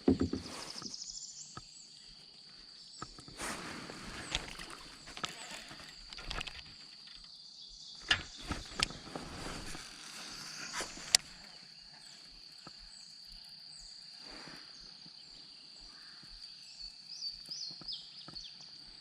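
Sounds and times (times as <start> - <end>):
gear knocking in a kayak: 0.0 - 0.9, 4.1 - 7.2.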